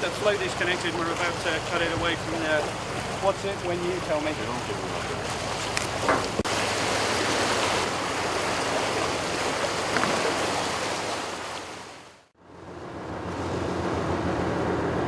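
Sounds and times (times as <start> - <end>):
water rushing: 0.0 - 12.3
low engine hum: 12.4 - 15.0.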